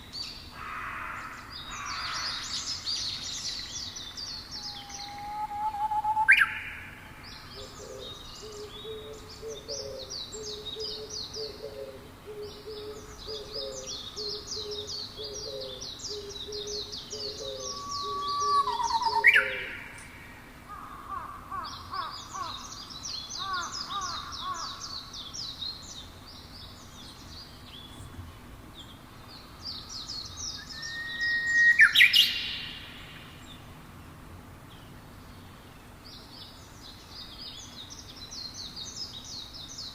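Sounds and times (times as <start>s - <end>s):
birds trilling: 0.6s - 25.4s
upward-sweeping bird whistle: 4.6s - 6.8s, 17.5s - 19.8s, 30.5s - 32.8s.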